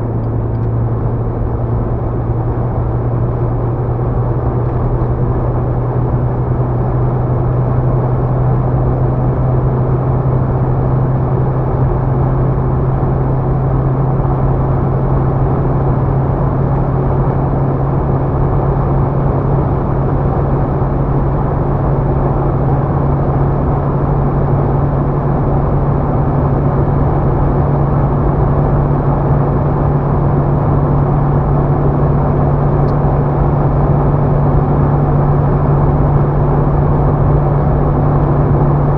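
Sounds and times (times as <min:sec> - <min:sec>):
diesel engine droning: 0:00.0 - 0:38.9
wind and tyre noise: 0:00.0 - 0:38.9.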